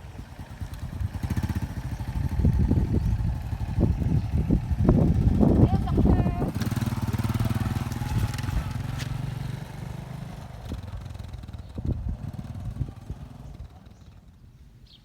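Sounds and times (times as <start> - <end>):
motorcycle engine running: 0.0 - 14.6.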